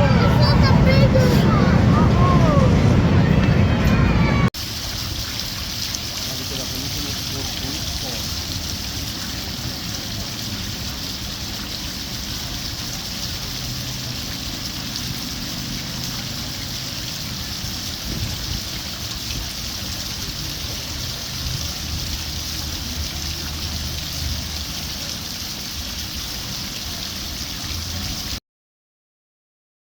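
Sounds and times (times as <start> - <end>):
miniature train rumbling: 0.0 - 4.5.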